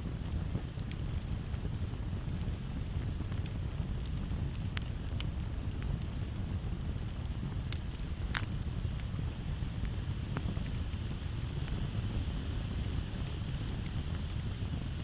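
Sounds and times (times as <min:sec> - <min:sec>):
campfire crackling and popping: 0:00.0 - 0:15.0
low steady rumble: 0:00.0 - 0:15.0.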